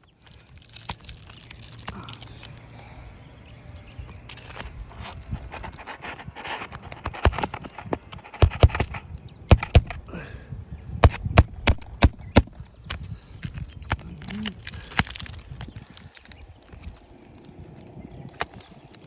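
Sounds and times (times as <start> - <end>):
sharp knocks and snaps: 6.8 - 10.1, 11.0 - 16.1.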